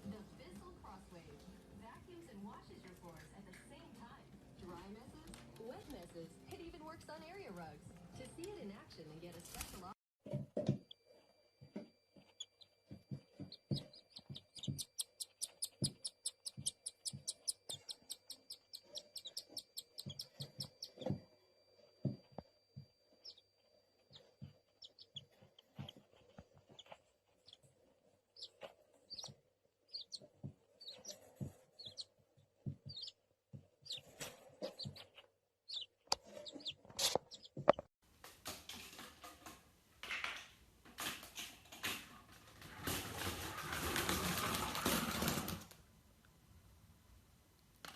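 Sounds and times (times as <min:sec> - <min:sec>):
parrot chirping: 0:12.3 - 0:21.2, 0:28.4 - 0:29.3, 0:29.9 - 0:30.2, 0:30.8 - 0:31.2, 0:31.8 - 0:32.1, 0:32.9 - 0:33.2, 0:33.8 - 0:37.7.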